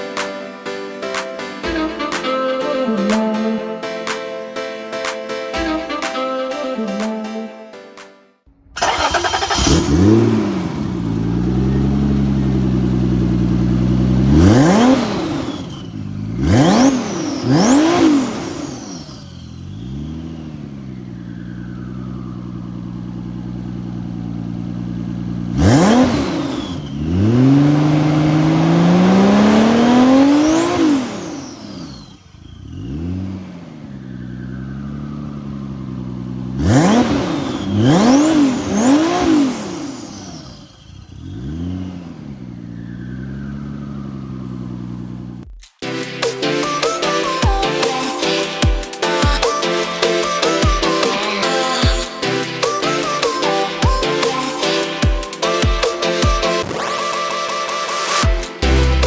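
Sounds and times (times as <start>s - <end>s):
car engine idling and revving: 8.6s - 45.6s, 58.2s - 59.0s.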